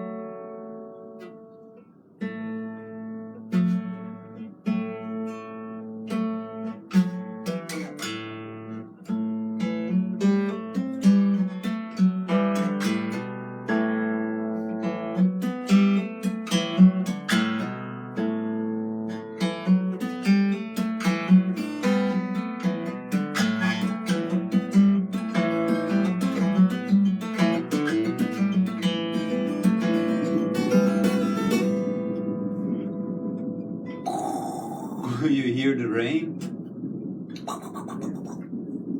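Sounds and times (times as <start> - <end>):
plucked string instrument: 0.0 - 34.0.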